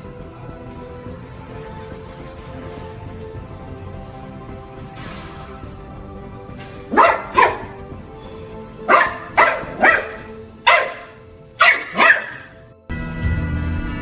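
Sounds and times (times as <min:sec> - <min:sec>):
background music: 0:00.0 - 0:14.0
dog barking: 0:06.9 - 0:07.8, 0:08.8 - 0:12.6.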